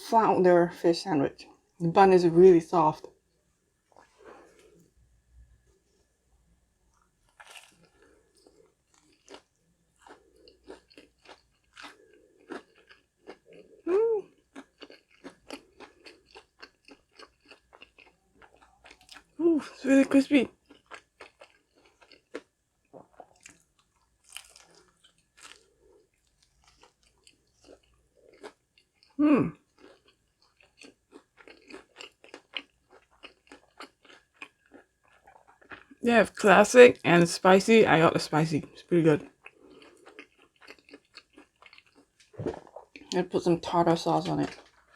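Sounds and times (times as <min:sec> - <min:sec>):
crunching chews: 0:06.9 - 0:19.4, 0:20.5 - 0:36.0, 0:39.2 - 0:43.2, 0:44.4 - 0:44.9
crunchy bite: 0:07.3 - 0:13.4.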